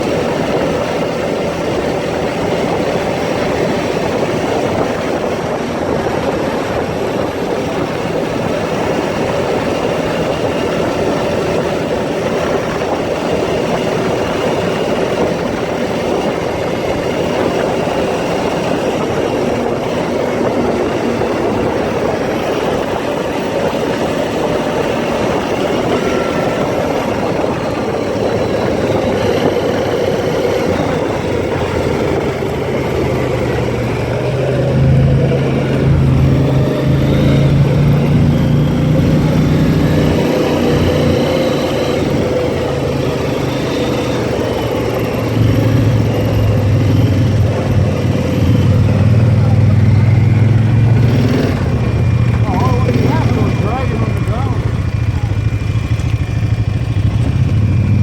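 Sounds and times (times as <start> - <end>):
quad bike engine droning: 0.0 - 58.0.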